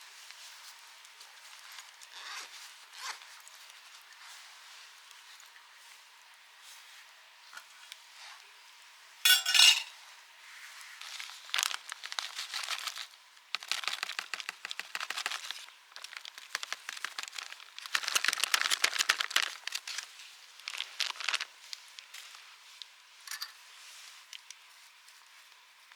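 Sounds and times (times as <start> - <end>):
crinkling and crackling: 10.8 - 22.9.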